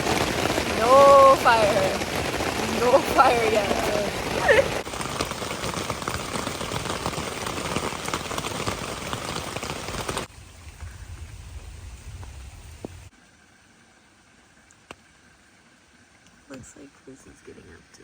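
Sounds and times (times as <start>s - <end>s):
heavy rain falling: 0.0s - 13.1s.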